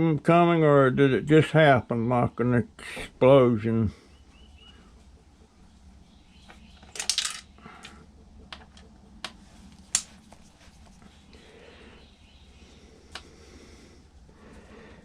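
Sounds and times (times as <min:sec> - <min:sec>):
hand tools clicking and clinking: 0:06.8 - 0:07.5.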